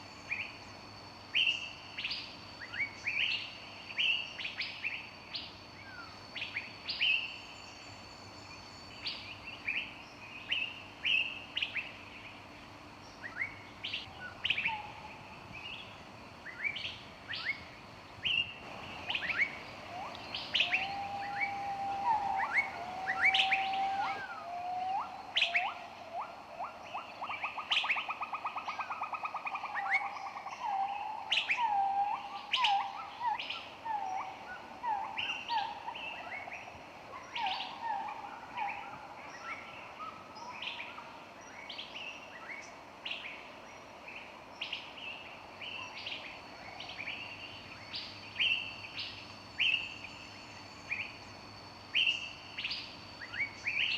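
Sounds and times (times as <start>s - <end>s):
songbirds chirping: 0.0s - 53.9s
fast bird trill: 18.7s - 24.4s
lower-pitched bird whistling: 18.7s - 26.3s.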